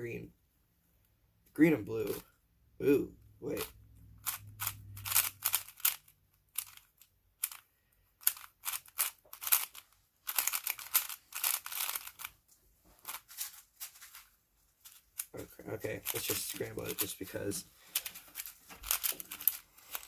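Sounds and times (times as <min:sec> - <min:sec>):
puzzle cube plastic clicking: 0:03.6 - 0:12.4, 0:17.9 - 0:20.0.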